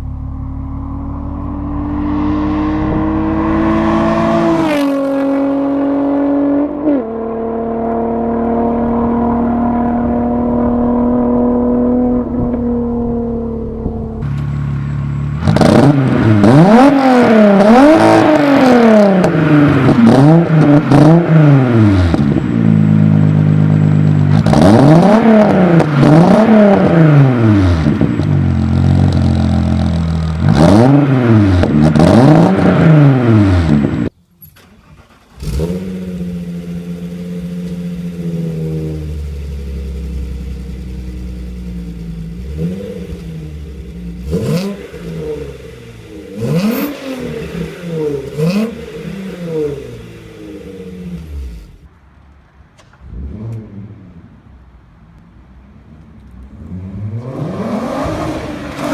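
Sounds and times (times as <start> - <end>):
car engine revving: 0.0 - 34.1, 34.9 - 51.9, 53.0 - 54.5, 56.2 - 58.9
car engine idling: 12.2 - 16.6.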